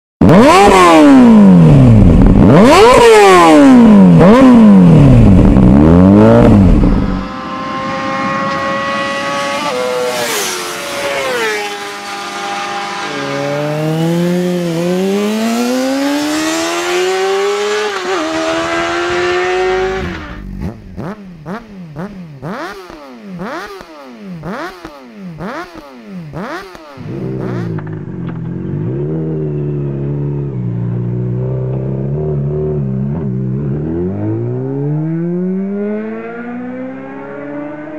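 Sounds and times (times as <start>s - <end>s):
motorcycle engine revving: 0.2s - 37.9s
motorcycle engine idling: 20.4s - 31.8s.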